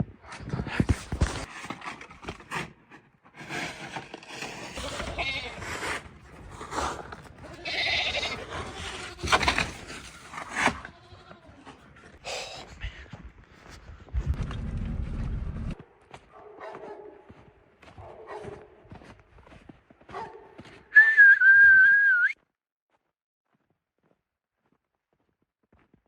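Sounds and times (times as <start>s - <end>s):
livestock bleating: 4.8s - 5.6s, 7.4s - 8.5s, 10.8s - 11.6s.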